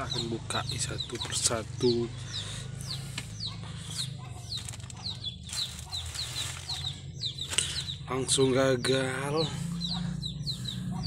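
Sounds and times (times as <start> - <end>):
bird chirping: 0.0 - 11.0
steady low hum: 0.0 - 11.0
plastic bag rustling: 4.4 - 7.8.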